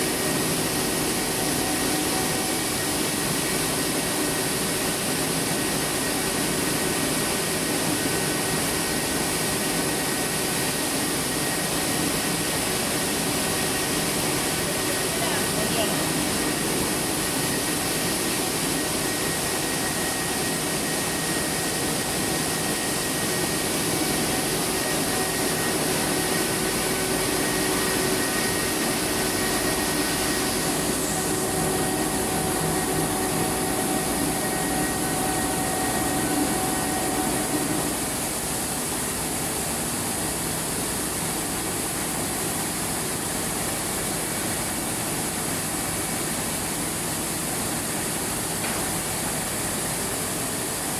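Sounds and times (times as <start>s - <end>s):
machinery whirring: 22.9s - 38.2s.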